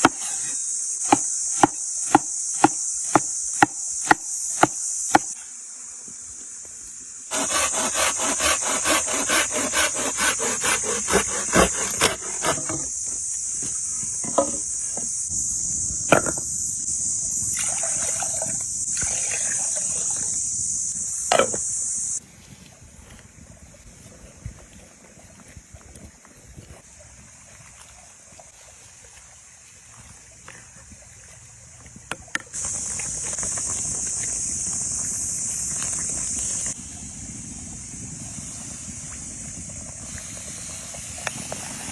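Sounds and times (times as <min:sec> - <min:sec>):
high-pitched insect buzz: 0:00.4 - 0:17.6, 0:18.4 - 0:22.2, 0:32.6 - 0:36.8
knife chopping on wooden board: 0:01.0 - 0:05.3, 0:07.3 - 0:12.8.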